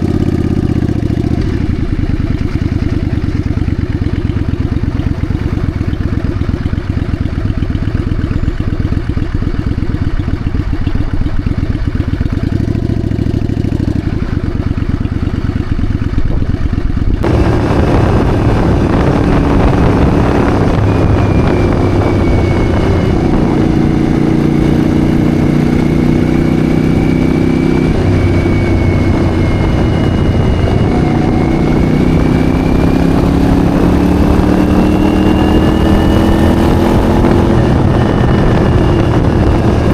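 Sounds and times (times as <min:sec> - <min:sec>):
motorcycle engine: 0:00.0 - 0:39.9
wind rush: 0:15.9 - 0:39.9.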